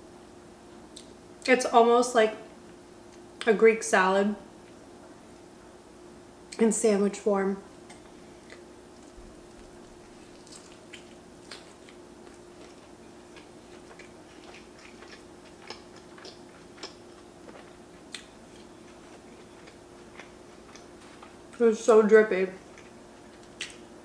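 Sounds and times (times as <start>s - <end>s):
faint steady hum: 0.0s - 24.0s
mouth chewing food: 7.9s - 21.6s, 22.6s - 23.9s.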